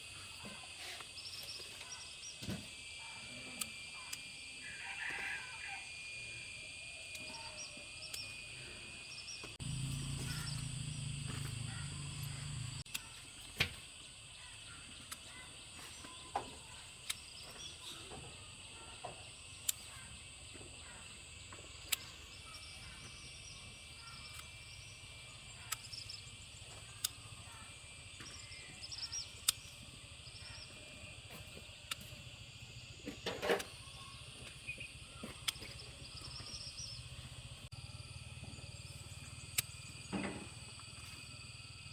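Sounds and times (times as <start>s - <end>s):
low hum: 9.5s - 12.8s.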